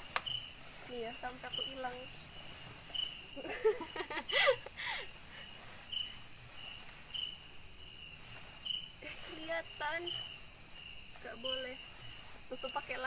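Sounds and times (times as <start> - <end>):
crickets droning: 0.0 - 13.0
insect chirps: 0.0 - 13.0
woman's voice: 0.9 - 2.1, 9.0 - 10.3, 11.2 - 11.8, 12.5 - 13.0.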